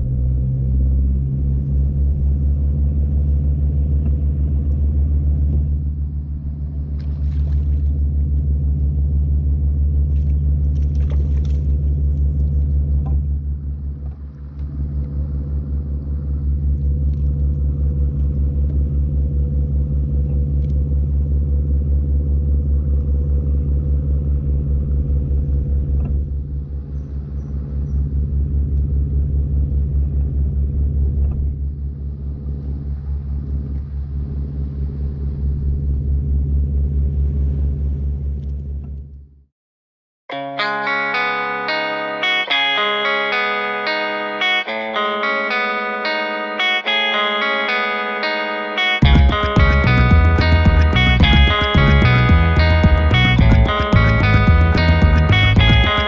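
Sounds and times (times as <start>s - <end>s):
engine rumbling: 0.0s - 27.3s, 49.0s - 56.0s.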